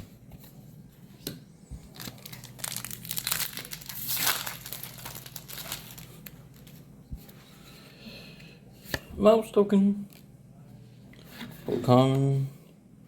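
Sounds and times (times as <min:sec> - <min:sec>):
foil wrapper crinkling: 0:01.9 - 0:06.9.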